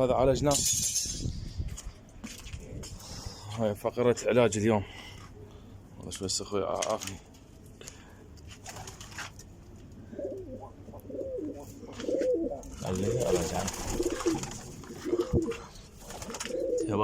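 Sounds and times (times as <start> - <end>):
pigeons cooing: 10.0 - 17.0.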